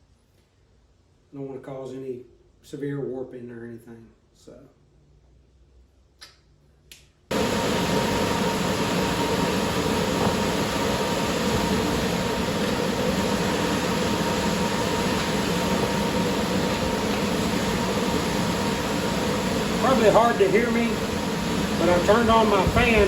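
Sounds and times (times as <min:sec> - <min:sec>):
electric fan rushing air: 0:07.3 - 0:23.0.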